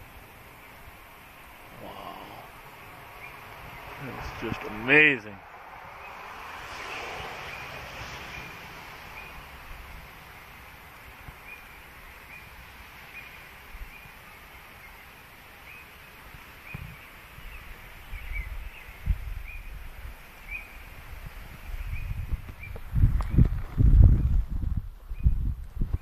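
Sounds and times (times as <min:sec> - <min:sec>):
bird chirping: 0:00.4 - 0:09.6, 0:10.2 - 0:19.8, 0:20.4 - 0:21.0, 0:21.6 - 0:23.5
wind buffeting microphone: 0:01.9 - 0:10.2, 0:16.6 - 0:26.0.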